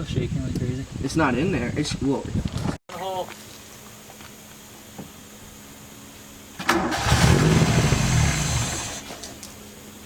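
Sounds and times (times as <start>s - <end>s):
engine revving: 6.6s - 9.1s.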